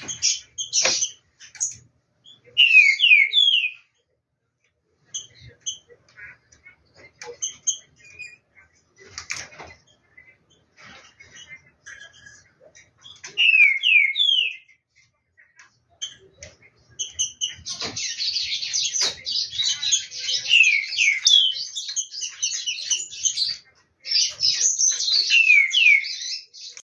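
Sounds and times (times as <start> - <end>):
bird rapid chattering: 0.0 - 3.8, 15.9 - 26.8.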